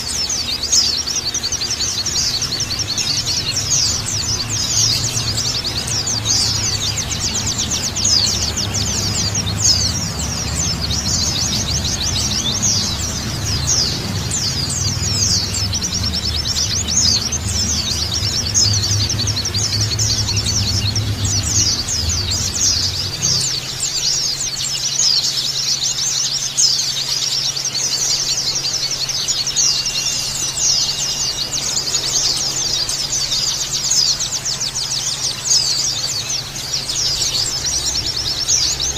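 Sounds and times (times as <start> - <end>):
birds chirping and trilling: 0.0 - 38.9
low hum: 2.3 - 24.2.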